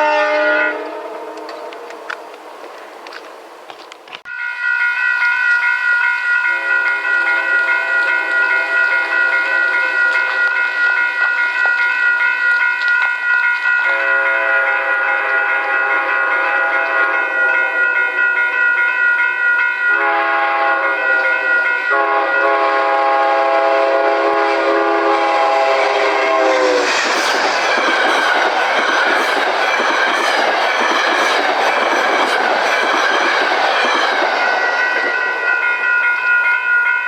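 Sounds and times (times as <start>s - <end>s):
train horn blasts: 0.0s - 2.4s, 6.5s - 10.3s, 13.8s - 18.0s, 19.9s - 27.0s
train wheels clicking over rail joints: 25.8s - 36.4s.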